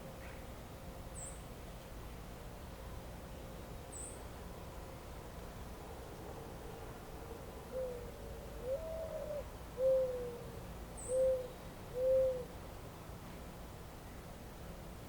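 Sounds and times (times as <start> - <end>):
bird hooting call: 7.7 - 12.6.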